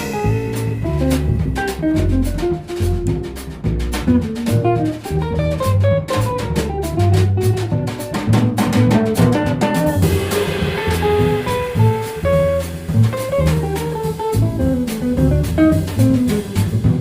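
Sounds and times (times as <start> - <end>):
cymbal crash: 0.0 - 2.0, 10.0 - 14.5
bass line: 0.0 - 17.0
guitar lines: 0.0 - 17.0
steady jazz cymbal beat: 0.0 - 17.0.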